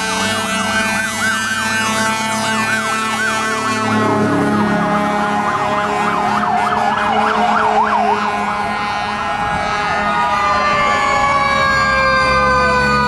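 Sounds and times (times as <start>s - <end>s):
fire truck siren wailing: 0.0s - 13.0s
other sirens: 0.0s - 13.0s
steady tones: 2.0s - 9.3s.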